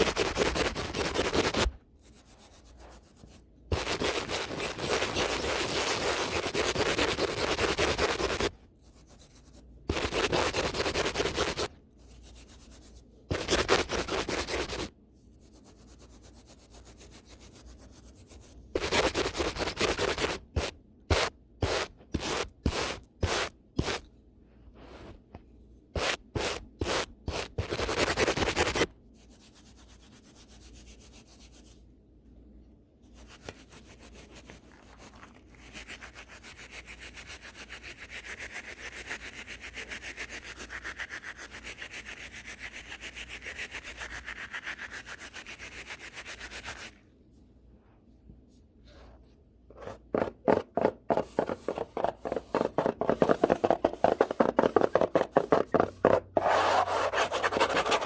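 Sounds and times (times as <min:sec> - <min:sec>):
brush rasping on microphone: 0:50.8 - 0:58.0.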